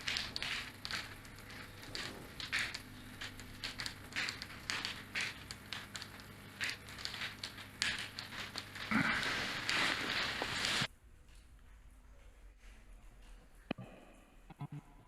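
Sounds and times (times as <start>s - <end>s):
plastic bottle shaker rattling: 0.0s - 10.9s.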